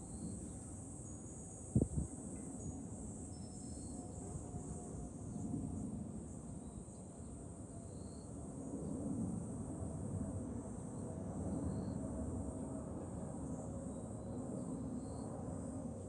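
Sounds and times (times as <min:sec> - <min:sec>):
wind rumbling on microphone: 0:01.7 - 0:02.2.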